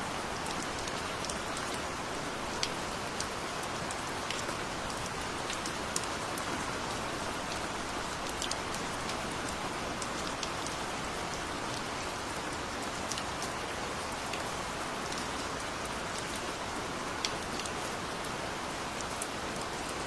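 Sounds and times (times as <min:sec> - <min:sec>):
gentle rain hiss: 0:00.0 - 0:20.0
raindrops ticking on a surface: 0:00.1 - 0:20.0.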